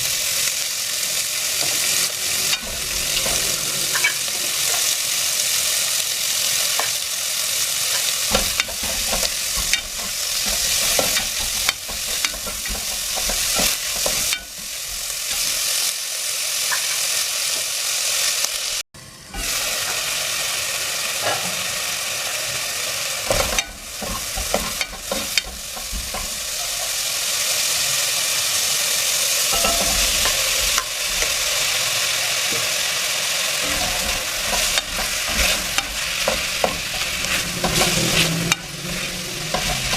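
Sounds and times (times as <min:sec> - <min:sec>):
food frying in oil: 0:00.0 - 0:39.9
utensil stirring in pan: 0:00.5 - 0:15.9, 0:23.2 - 0:28.0, 0:29.2 - 0:39.9.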